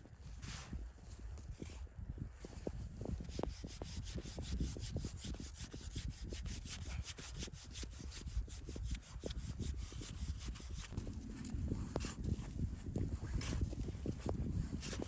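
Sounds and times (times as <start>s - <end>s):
hand saw cutting: 3.3s - 11.0s.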